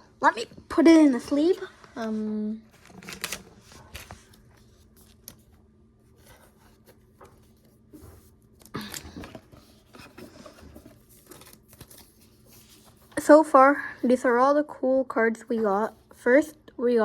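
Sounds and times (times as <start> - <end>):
card rustling into plastic sleeve: 2.7 - 13.3.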